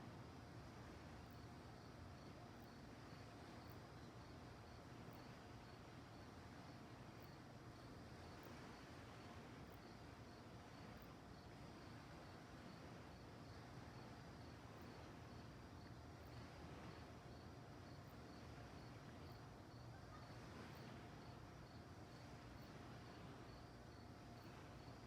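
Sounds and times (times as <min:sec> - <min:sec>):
crickets chirping: 0:00.0 - 0:25.0
low background hiss: 0:00.0 - 0:25.0.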